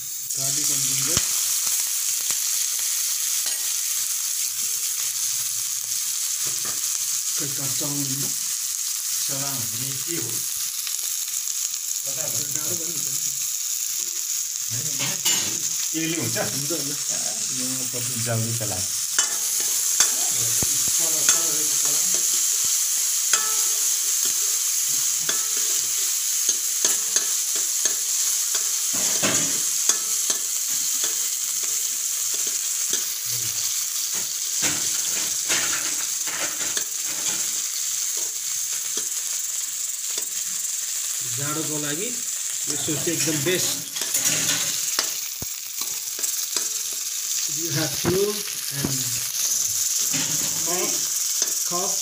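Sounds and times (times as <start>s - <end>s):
garlic and onion sizzling in oil: 0.0s - 52.0s
spatula scraping a pan: 19.1s - 33.2s, 43.1s - 45.2s.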